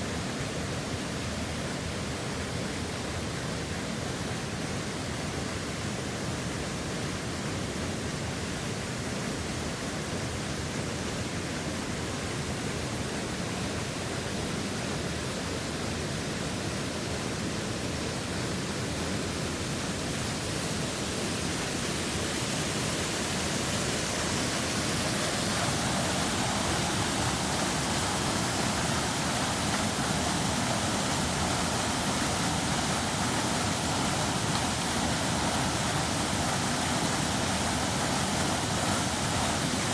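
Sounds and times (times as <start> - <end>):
waterfall rushing: 19.2 - 39.9.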